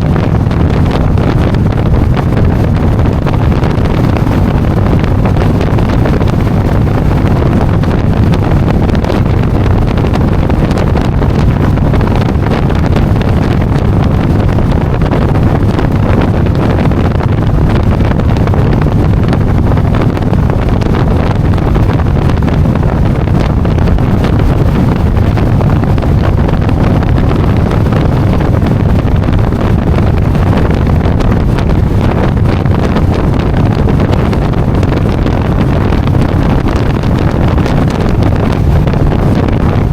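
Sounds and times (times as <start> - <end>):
motorcycle engine hum: 0.0 - 39.9
wind rush on microphone: 0.0 - 39.9.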